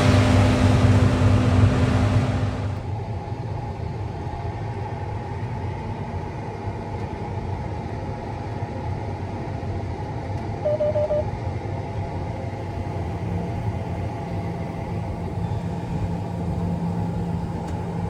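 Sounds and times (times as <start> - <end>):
combine harvester rumbling: 0.0 - 2.8
quick beeps: 10.6 - 11.3.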